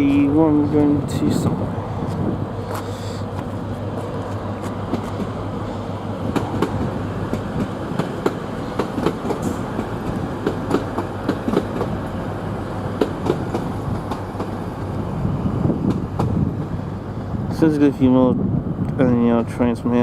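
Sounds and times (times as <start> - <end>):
train wheels clicking over rail joints: 0.0 - 15.0, 15.8 - 16.7
train rumble: 0.0 - 20.0.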